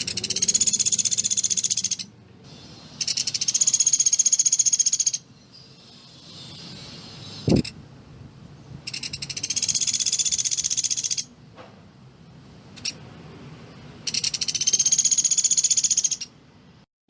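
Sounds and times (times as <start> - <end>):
woodpecker rattling trills: 0.0 - 2.1, 2.9 - 5.3, 8.9 - 11.3, 14.0 - 16.3.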